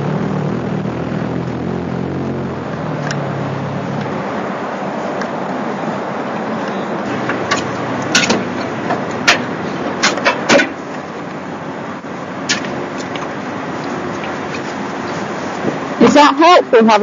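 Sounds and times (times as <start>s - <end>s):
car engines idling: 0.0s - 17.0s
tools clicking and knocking: 6.6s - 11.0s.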